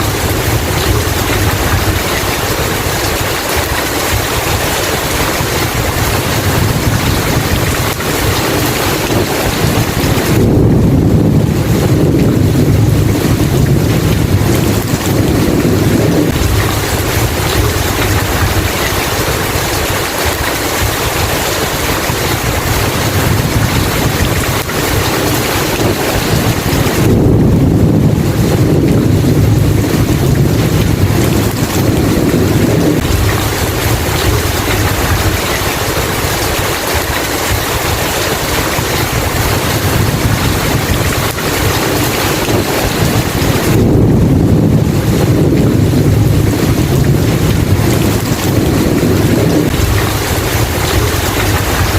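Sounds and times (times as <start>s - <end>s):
heavy rain: 0.0s - 51.9s
low rolling thunder: 0.0s - 51.9s.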